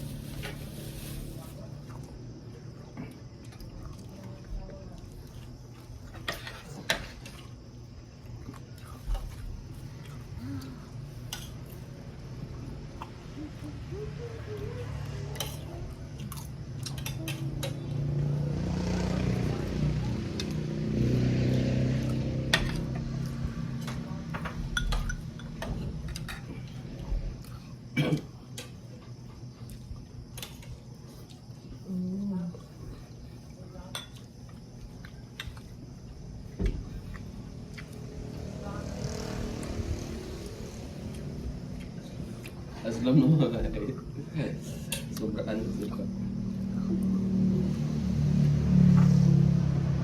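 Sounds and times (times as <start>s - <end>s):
cutlery clinking against dishes: 15.3s - 15.7s, 23.9s - 26.6s, 33.9s - 34.3s.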